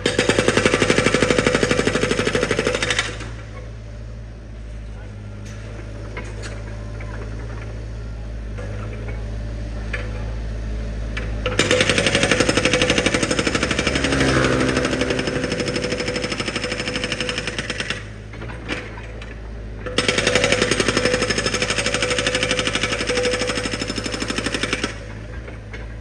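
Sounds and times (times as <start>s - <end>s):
drilling machine engine running: 11.6s - 18.1s.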